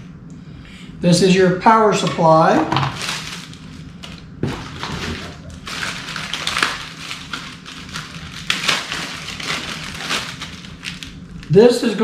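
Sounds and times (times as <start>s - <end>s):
packaging rustling and crinkling: 2.7s - 11.6s.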